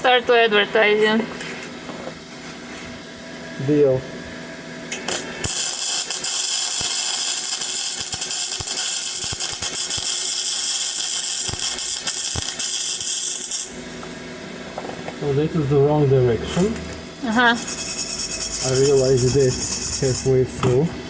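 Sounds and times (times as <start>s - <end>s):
arc welding crackling: 4.9s - 14.1s, 16.6s - 20.5s.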